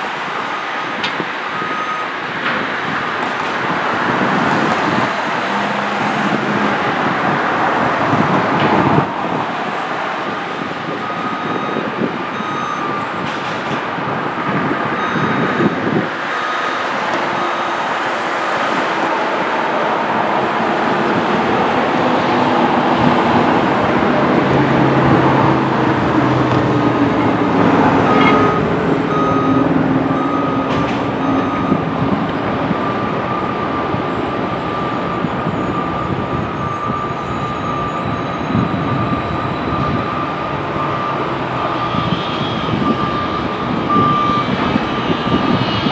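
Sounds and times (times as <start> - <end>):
train rumbling: 13.2 - 45.9.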